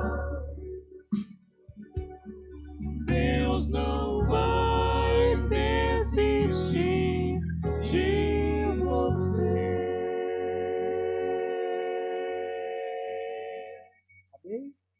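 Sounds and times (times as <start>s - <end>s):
vocal quartet singing in harmony: 0.0s - 0.8s, 3.0s - 14.0s
sustained low instrumental accompaniment: 0.0s - 12.6s.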